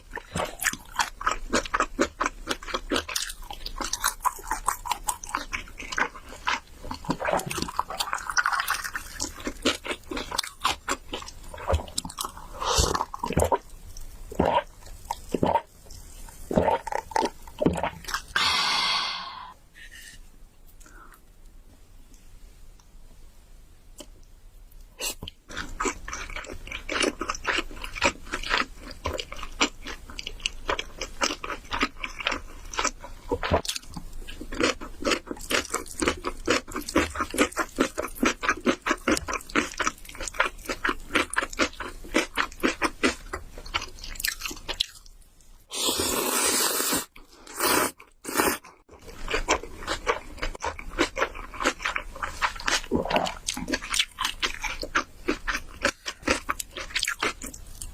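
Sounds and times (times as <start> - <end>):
chewing noodles: 0.0 - 18.4, 25.1 - 45.2, 45.8 - 57.9
slurping: 45.7 - 48.6.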